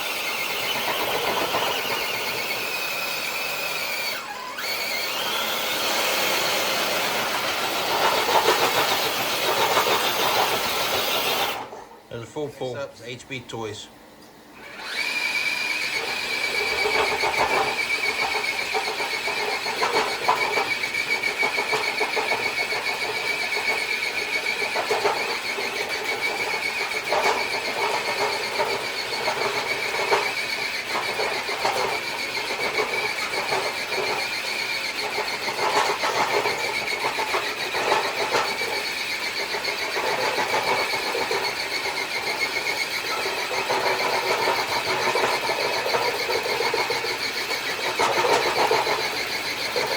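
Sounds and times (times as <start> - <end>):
electric motor and gears whining: 0.0 - 11.7, 14.6 - 49.9
sled scraping and clattering: 6.9 - 11.5, 35.2 - 49.9.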